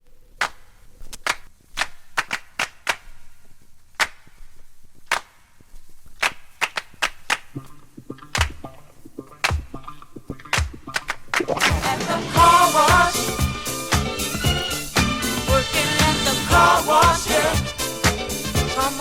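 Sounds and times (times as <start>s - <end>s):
sharp handclaps: 0.4s - 3.2s, 4.0s - 4.4s, 5.1s - 5.4s, 6.2s - 8.8s, 9.4s - 11.9s
funk-disco song: 6.1s - 19.0s
bass line: 11.6s - 19.0s.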